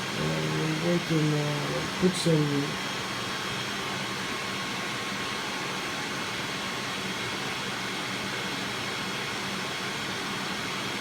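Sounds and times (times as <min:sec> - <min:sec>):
fans whirring: 0:00.0 - 0:06.3.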